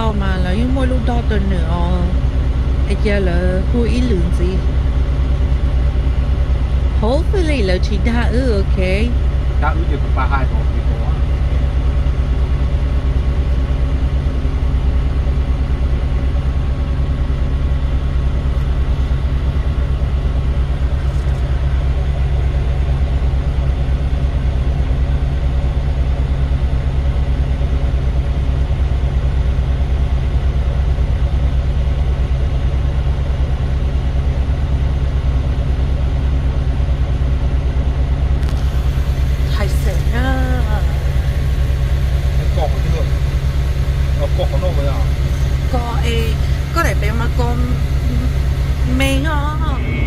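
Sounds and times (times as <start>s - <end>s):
diesel truck engine idling: 0.0s - 50.0s
faint steady whines: 0.0s - 50.0s.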